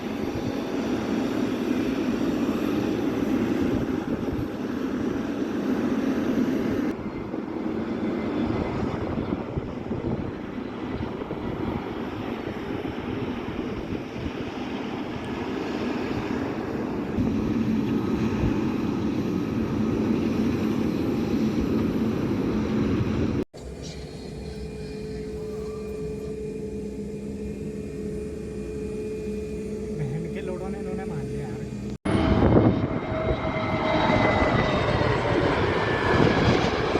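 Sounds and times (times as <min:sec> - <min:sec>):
jet engines rumbling: 0:00.0 - 0:36.9
engine hum with thin whine: 0:23.6 - 0:32.7.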